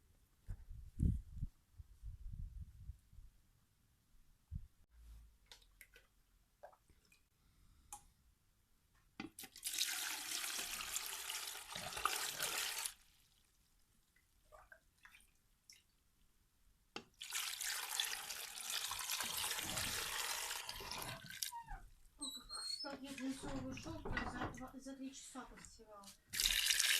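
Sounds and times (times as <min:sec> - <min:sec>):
water running from a tap: 0:09.6 - 0:13.0, 0:17.2 - 0:21.5, 0:26.4 - 0:26.9.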